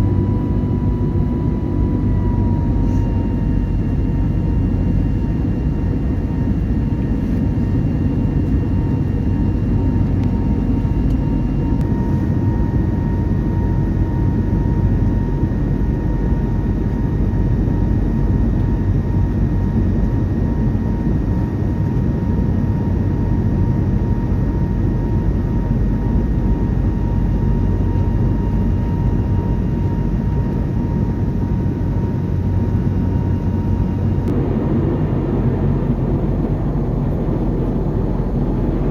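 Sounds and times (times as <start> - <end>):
airplane cabin rumble: 0.0 - 38.9
thin steady whine: 29.5 - 38.9.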